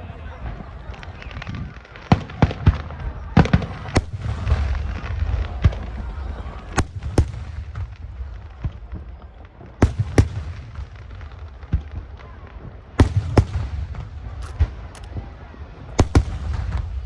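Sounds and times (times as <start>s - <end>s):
fireworks bursting with sharp bangs: 6.8s - 17.0s.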